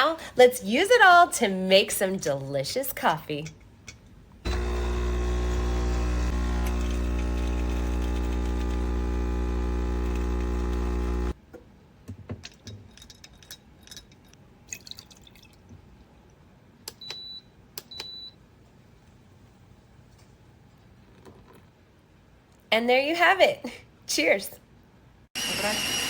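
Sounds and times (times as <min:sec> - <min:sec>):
espresso machine pump buzzing: 0:04.5 - 0:11.4, 0:25.4 - 0:26.0.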